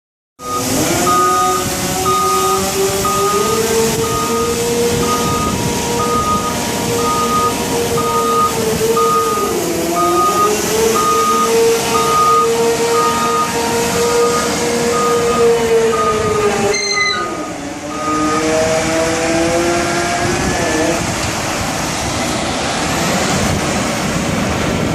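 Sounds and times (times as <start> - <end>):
reversing alarm beeping: 0.4 - 18.6
truck diesel engine running: 0.4 - 24.9.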